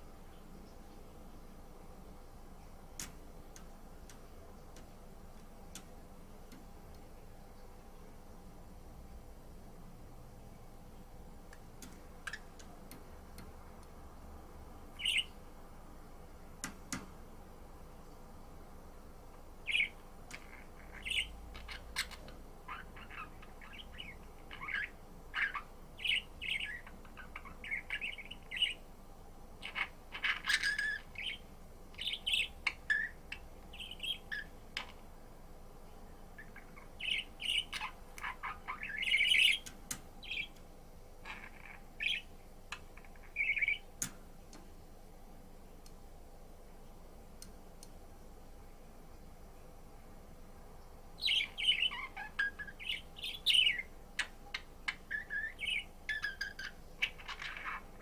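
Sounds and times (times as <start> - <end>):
budgerigar chirping and warbling: 15.0 - 15.3, 19.7 - 28.8, 29.6 - 31.4, 32.0 - 35.0, 36.4 - 40.5, 41.2 - 43.8, 51.2 - 58.0.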